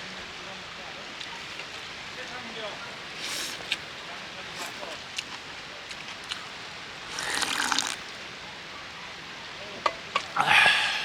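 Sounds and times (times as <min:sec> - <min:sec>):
water running: 0:07.0 - 0:08.2.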